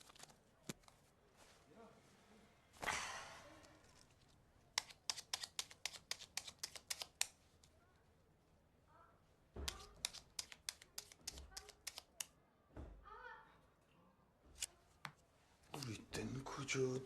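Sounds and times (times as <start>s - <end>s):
plastic cards brushing: 0.0s - 1.1s, 3.8s - 7.7s, 9.6s - 12.3s, 15.6s - 16.1s
cards snapping down: 4.8s - 7.4s, 9.6s - 12.3s.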